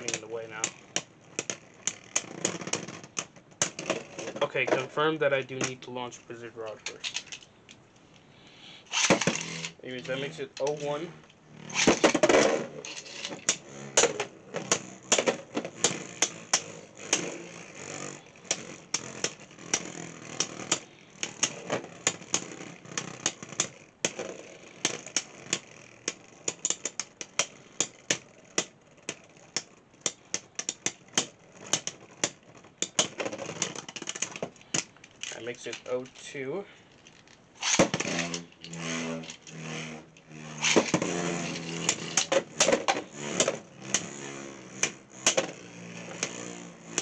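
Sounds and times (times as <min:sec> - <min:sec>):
whirring hiss of spinning tops: 0:08.4 - 0:47.0
spinning tops clacking: 0:08.9 - 0:36.3, 0:37.0 - 0:47.0.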